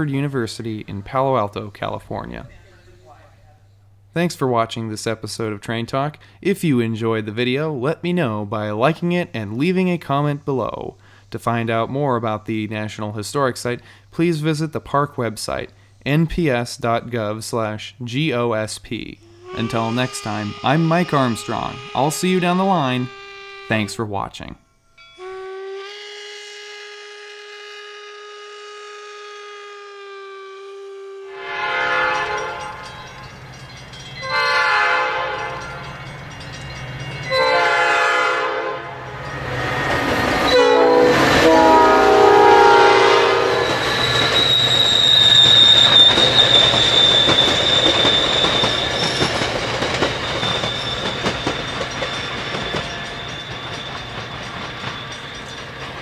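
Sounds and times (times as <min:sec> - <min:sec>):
high steady squeal: 0:19.0 - 0:31.4, 0:39.0 - 0:56.0
train air horn blasts: 0:19.2 - 0:33.0, 0:34.2 - 0:35.9, 0:37.2 - 0:49.1
steam locomotive whistle: 0:19.2 - 0:33.2, 0:34.2 - 0:36.0, 0:37.2 - 0:55.6
train wheels rumbling: 0:31.4 - 0:56.0.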